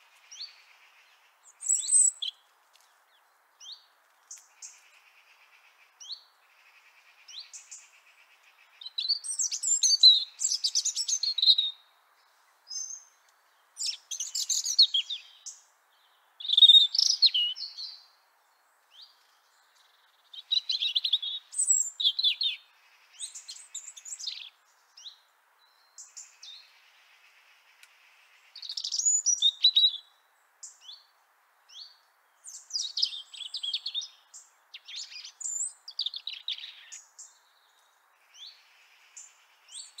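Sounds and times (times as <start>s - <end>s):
robin singing warbling phrases: 1.4s - 2.4s, 8.7s - 11.9s, 13.8s - 15.6s, 16.4s - 18.0s, 20.2s - 26.7s, 28.5s - 31.1s, 31.7s - 37.4s.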